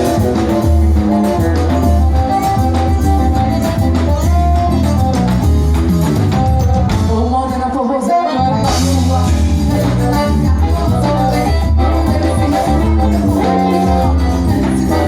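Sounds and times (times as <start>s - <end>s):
person singing: 0.0s - 4.6s, 6.8s - 15.0s
live band music: 0.0s - 15.0s.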